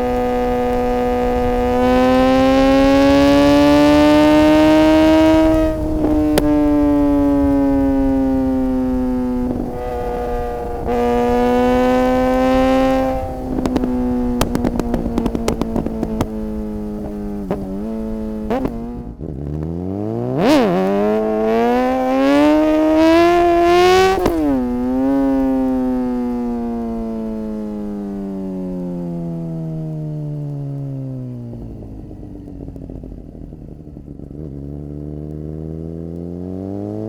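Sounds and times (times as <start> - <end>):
exhaust crackles and pops: 0.0 - 36.4
motorcycle engine accelerating: 0.0 - 37.0.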